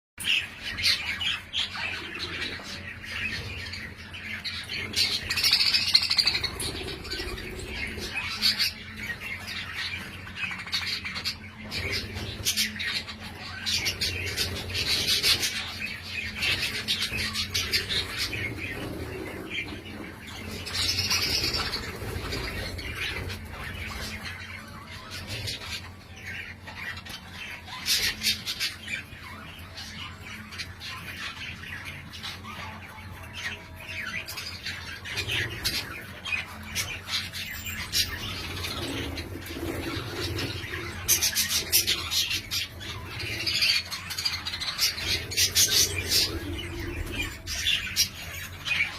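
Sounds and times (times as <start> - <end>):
budgerigars chattering: 0.2 - 48.9.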